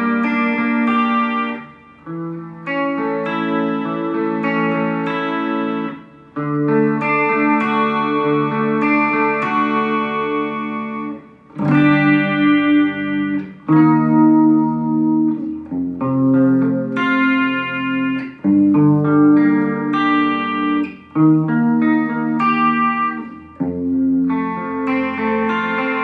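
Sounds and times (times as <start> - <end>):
electric guitar chords: 0.0 - 26.0.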